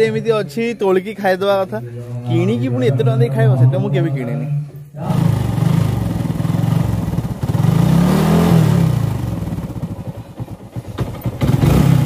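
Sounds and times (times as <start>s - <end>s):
vehicle engine pulsing: 5.0s - 12.0s.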